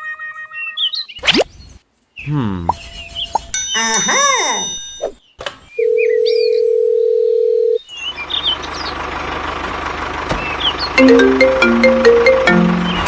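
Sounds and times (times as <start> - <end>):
birds chirping: 0.4 - 9.2, 10.4 - 13.0
bell-like tune: 3.5 - 5.1, 11.0 - 13.0
engine-like noise: 8.0 - 13.0.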